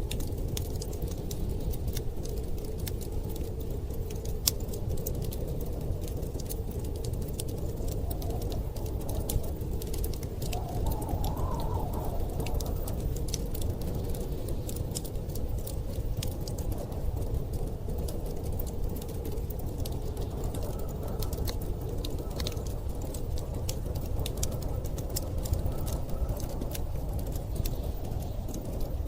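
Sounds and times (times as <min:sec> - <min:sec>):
blizzard wind rumble: 0:00.0 - 0:29.0
wood fire crackling: 0:00.0 - 0:29.0.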